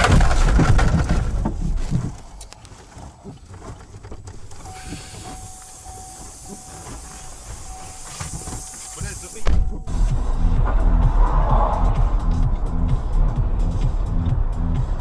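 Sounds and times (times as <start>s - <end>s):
steady hissing: 4.4s - 9.5s
faint held tone: 4.5s - 10.0s.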